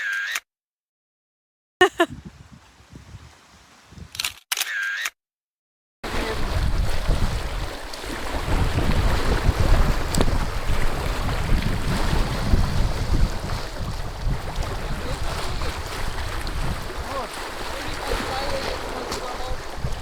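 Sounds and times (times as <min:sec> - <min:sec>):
wind buffeting microphone: 0:02.1 - 0:04.2, 0:06.0 - 0:20.0
sea waves: 0:06.0 - 0:20.0.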